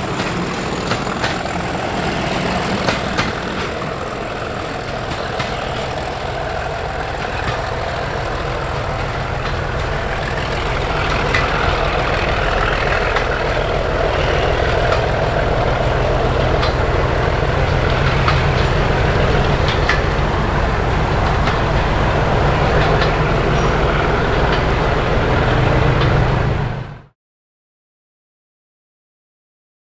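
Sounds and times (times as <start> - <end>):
diesel locomotive engine running: 0.0 - 27.1.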